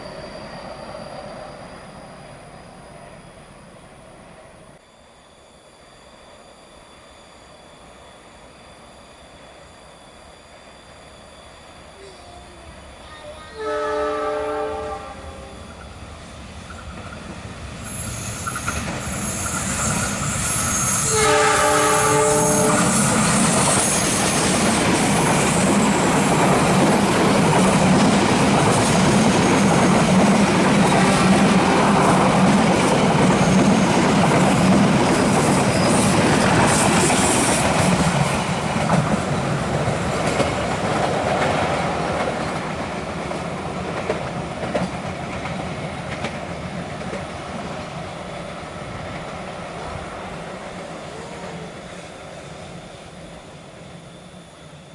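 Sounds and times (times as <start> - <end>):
multi-tone train horn: 12.0 - 15.8, 21.0 - 23.3.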